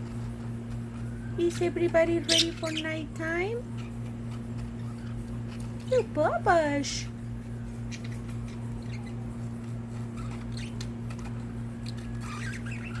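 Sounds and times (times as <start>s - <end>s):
steady low hum: 0.0s - 13.0s
budgies chirping: 1.5s - 5.4s, 7.8s - 9.4s, 10.0s - 13.0s.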